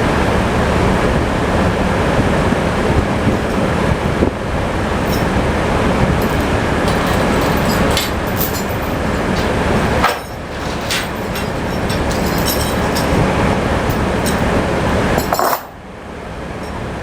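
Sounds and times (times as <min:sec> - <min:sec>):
sawmill mechanical din: 0:00.0 - 0:17.0
tractor engine: 0:00.0 - 0:17.0
sharp metal clanks: 0:06.2 - 0:14.6, 0:15.2 - 0:15.8.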